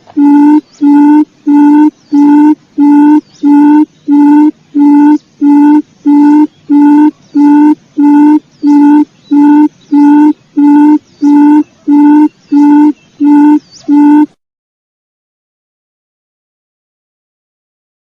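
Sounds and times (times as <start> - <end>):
bird chirps: 0.1 - 14.3
quail lure call hooting: 0.1 - 14.3.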